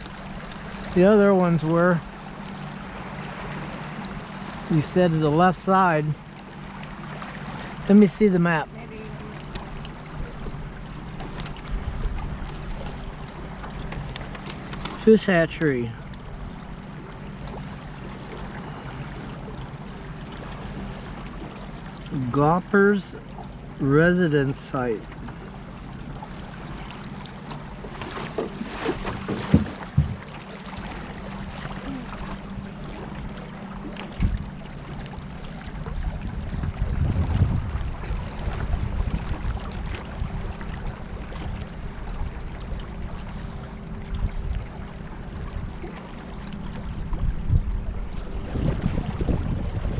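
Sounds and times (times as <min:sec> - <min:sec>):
boat motor hum: 0:00.0 - 0:49.9
low rumbling: 0:00.0 - 0:49.9
water and wind noise: 0:00.0 - 0:49.9
sharp knocks: 0:28.1 - 0:30.2.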